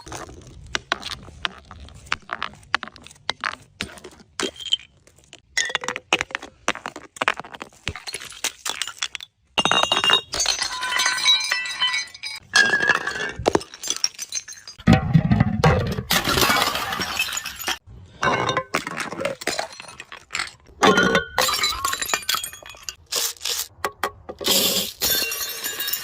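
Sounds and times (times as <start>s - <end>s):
glass bottles breaking: 8.0s - 23.0s, 24.4s - 26.0s
glass shards shattering and ringing: 9.6s - 14.8s, 24.6s - 26.0s.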